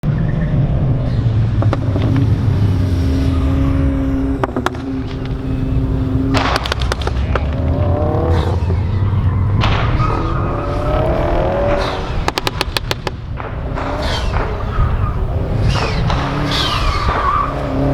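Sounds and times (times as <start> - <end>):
car engine running hard: 0.3 - 17.9
sharp clicks: 10.6 - 17.9.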